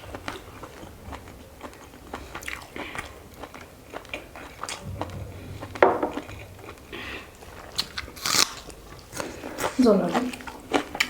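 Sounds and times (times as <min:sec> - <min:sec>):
chewing and mouth clicks: 0:00.0 - 0:05.0, 0:07.6 - 0:11.0
loud knock: 0:04.8 - 0:08.0.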